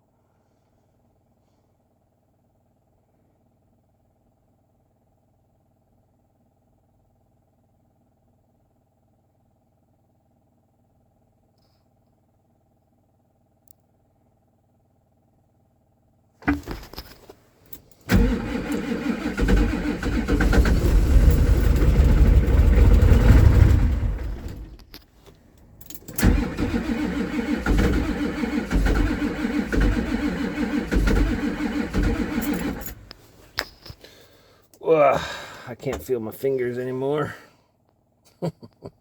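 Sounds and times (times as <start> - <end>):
diesel engine cranking: 17.7 - 34.2.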